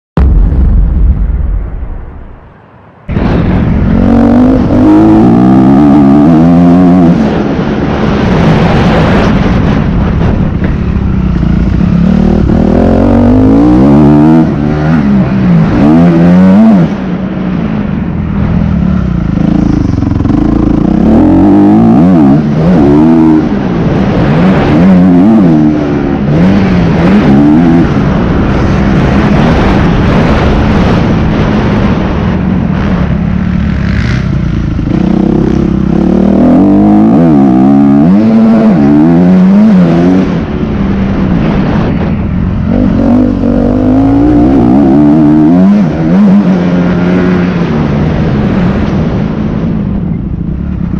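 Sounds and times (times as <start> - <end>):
motocross bike engine revving: 3.2 - 9.5, 10.7 - 17.0, 18.9 - 31.5, 32.8 - 40.6, 42.6 - 48.7.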